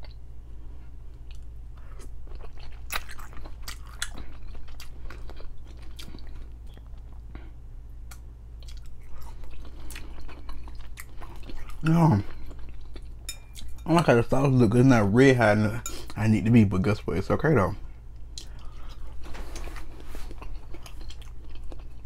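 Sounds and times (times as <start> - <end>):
person chewing noodles: 1.1 - 13.8, 18.2 - 22.0.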